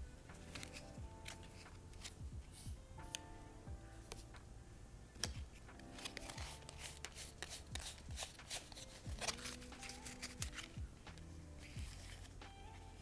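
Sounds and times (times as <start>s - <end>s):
cards being shuffled: 0.0s - 13.0s
soft background music: 0.0s - 13.0s.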